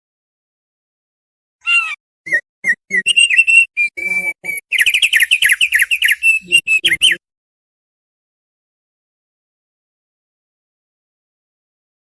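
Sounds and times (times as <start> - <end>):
bird whistling song: 1.7 - 7.2.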